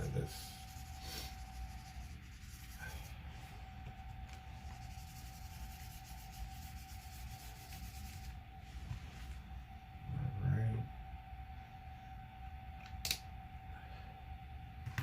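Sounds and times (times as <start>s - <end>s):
colouring tool rubbing on paper: 0.0s - 3.3s, 4.3s - 8.4s
faint steady hum: 0.0s - 15.0s.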